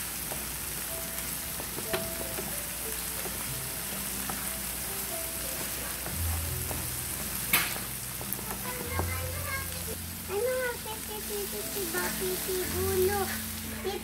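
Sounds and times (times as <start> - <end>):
vegetables sizzling in a frying pan: 0.0 - 14.0
spatula knocking the pan: 1.5 - 3.5, 4.2 - 4.5, 5.5 - 9.5.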